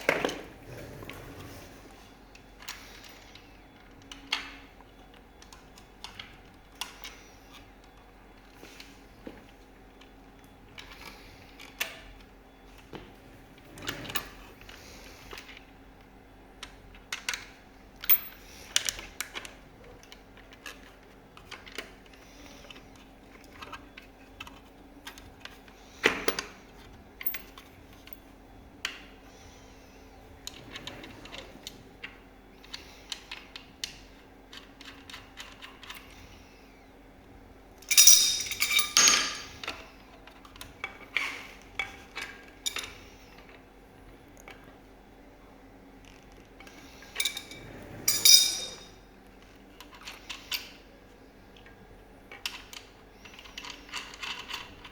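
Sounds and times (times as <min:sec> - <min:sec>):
faint steady hum: 0:00.0 - 0:54.9
hand tools clicking and scraping: 0:37.8 - 0:39.8, 0:47.1 - 0:48.9.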